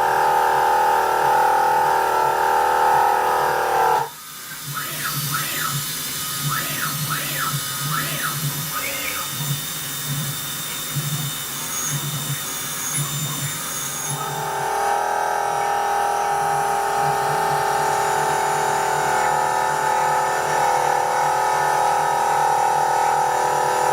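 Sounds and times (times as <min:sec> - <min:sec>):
electric power saw cutting: 0:00.0 - 0:04.2, 0:06.2 - 0:23.9.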